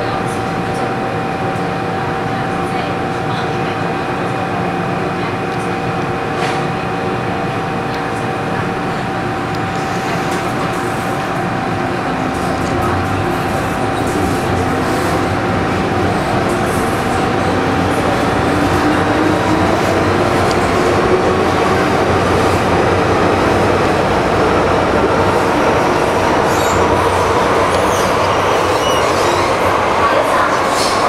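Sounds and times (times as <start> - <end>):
train wheels rumbling: 9.2 - 31.0.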